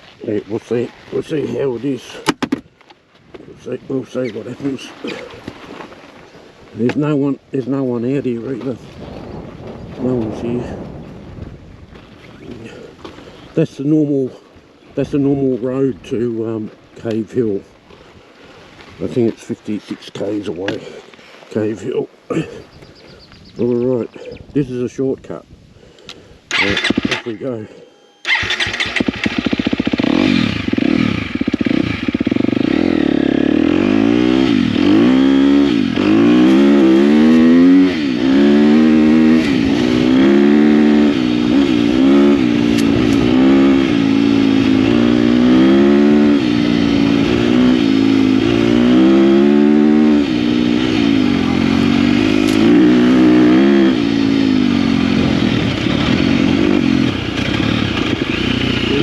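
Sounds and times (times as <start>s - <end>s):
wind and tyre noise: 0.0s - 59.0s
dirt bike engine revving: 26.5s - 27.6s, 28.2s - 59.0s.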